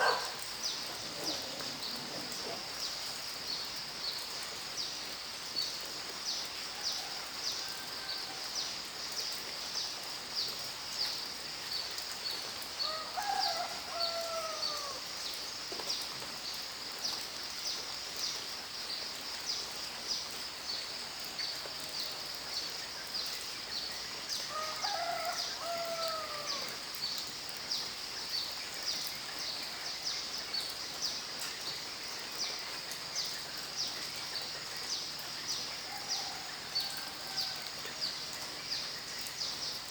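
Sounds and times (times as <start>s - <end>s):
insect chirping: 0.0s - 5.7s
rain hissing: 0.0s - 39.9s.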